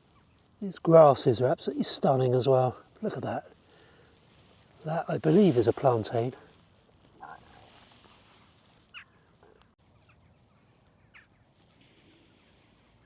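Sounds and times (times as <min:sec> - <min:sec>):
faint bird calls: 0:07.1 - 0:13.0.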